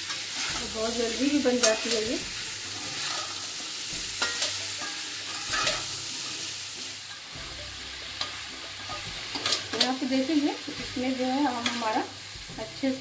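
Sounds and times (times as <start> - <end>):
metal spoon scraping a pan: 0.0 - 12.1
mango pieces sizzling in hot oil: 0.0 - 13.0.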